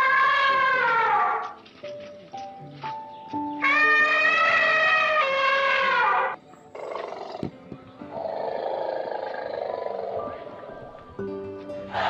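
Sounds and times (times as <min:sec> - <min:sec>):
background music melody: 0:00.8 - 0:12.0
drawn-out animal call: 0:03.6 - 0:07.5.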